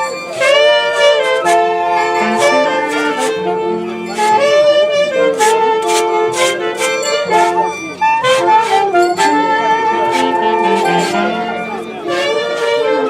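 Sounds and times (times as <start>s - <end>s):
wind instruments playing melody: 0.0s - 13.0s
percussion hits: 5.4s - 12.3s.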